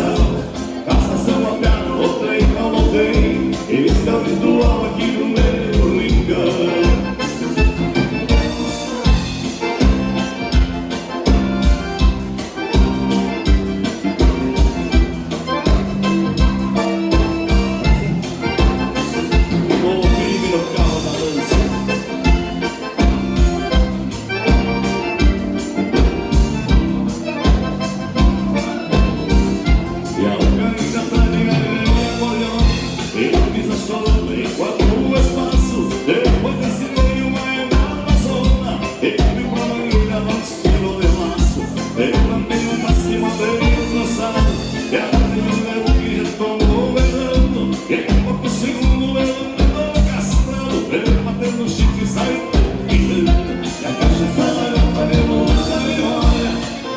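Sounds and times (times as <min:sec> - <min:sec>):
accordion: 0:00.0 - 0:56.9
drum beat: 0:00.0 - 0:56.9
keyboard: 0:00.0 - 0:56.9.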